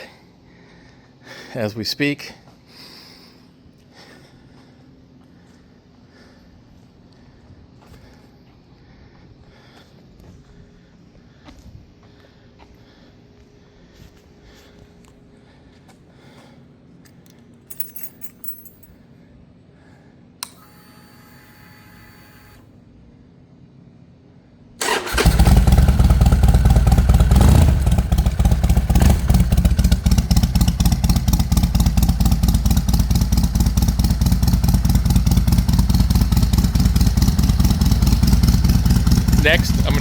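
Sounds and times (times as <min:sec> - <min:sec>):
fuel pump click and whine: 0:20.4 - 0:22.7
motorcycle engine idling: 0:24.8 - 0:40.0.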